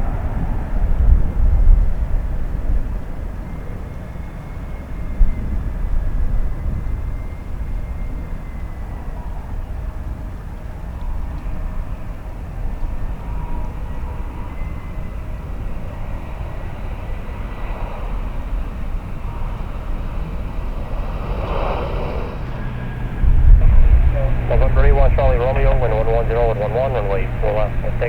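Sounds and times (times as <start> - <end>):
faint high whine: 11.0 - 28.0
jet engines rumbling: 12.3 - 28.0.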